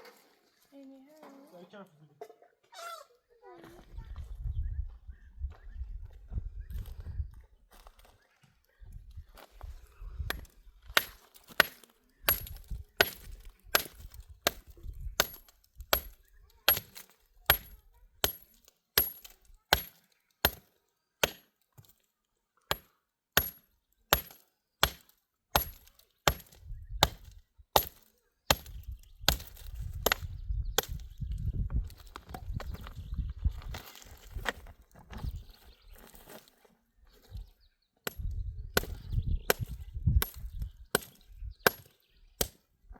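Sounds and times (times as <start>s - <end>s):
axe chopping wood: 10.3s - 21.9s, 22.7s - 31.0s, 38.1s - 42.6s.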